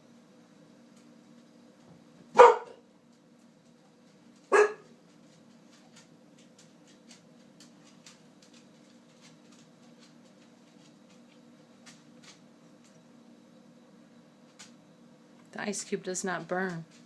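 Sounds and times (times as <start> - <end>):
dog barking: 2.3 - 2.8, 4.5 - 4.9.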